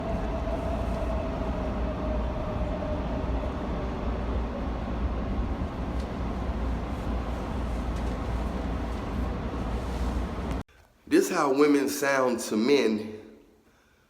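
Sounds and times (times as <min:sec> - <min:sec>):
vehicle low rumble: 0:00.0 - 0:10.6.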